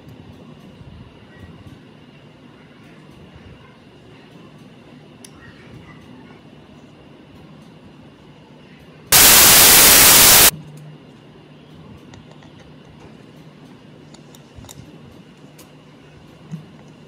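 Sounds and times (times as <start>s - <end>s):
loud burst of hiss: 9.2s - 10.5s.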